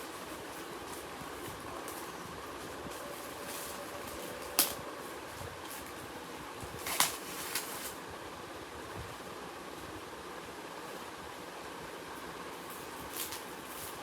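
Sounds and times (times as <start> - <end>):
packaging being handled: 0.0 - 6.0, 6.7 - 8.0.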